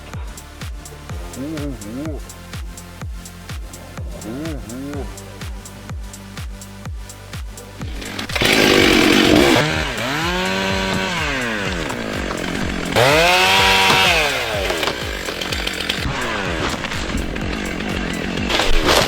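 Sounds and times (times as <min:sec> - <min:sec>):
chainsaw cutting and revving: 0:00.0 - 0:02.8, 0:03.6 - 0:05.8, 0:07.8 - 0:19.0
background music with beat: 0:00.0 - 0:19.0.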